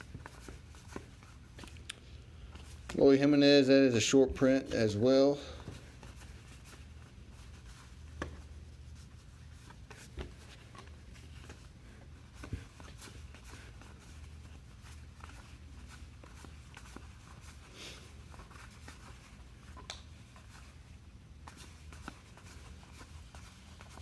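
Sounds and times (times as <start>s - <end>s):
steady low hum: 0.0s - 24.0s
cards sliding and rustling: 5.6s - 24.0s.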